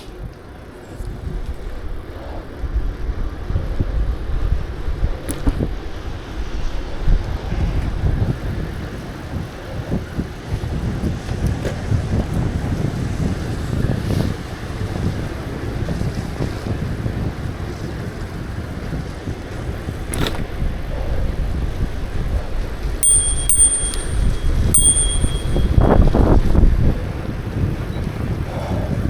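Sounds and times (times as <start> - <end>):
wind rumble on microphone: 0.0 - 29.0
bicycle bell ringing: 23.0 - 26.3.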